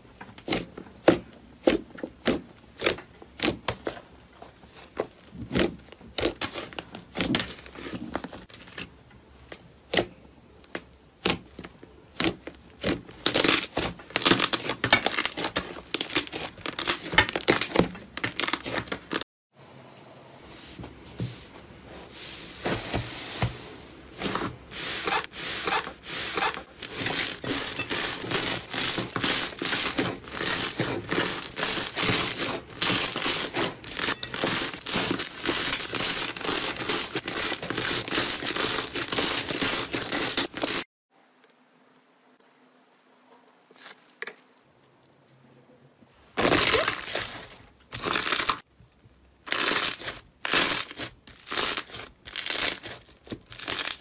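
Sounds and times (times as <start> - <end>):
slime crackling and popping: 49.4 - 54.0.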